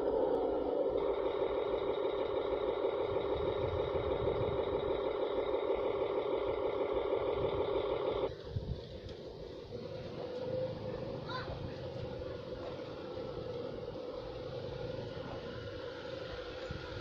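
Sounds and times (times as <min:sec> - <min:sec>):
toy truck motor whining: 0:00.0 - 0:08.4.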